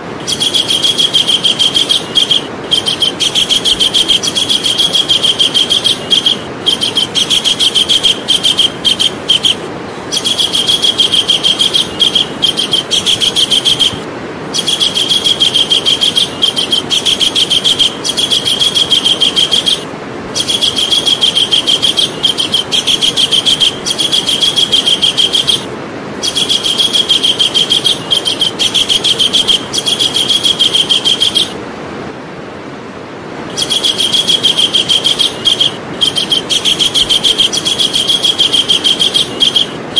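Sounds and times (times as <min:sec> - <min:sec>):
steady hiss: 0:00.0 - 0:39.9
kingfisher high trill: 0:00.1 - 0:31.6, 0:33.5 - 0:39.9.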